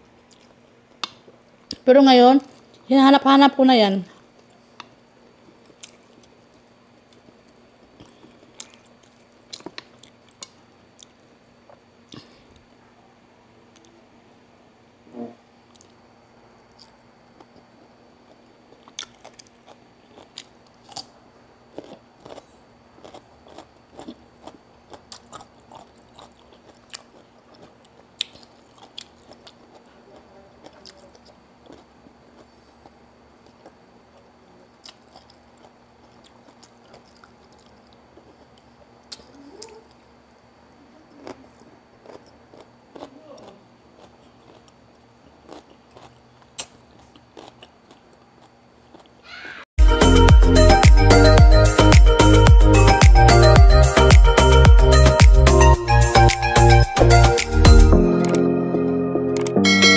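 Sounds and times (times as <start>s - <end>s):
person chewing crisp food: 0.3s - 0.6s, 5.5s - 12.4s, 18.3s - 40.0s, 41.2s - 49.2s.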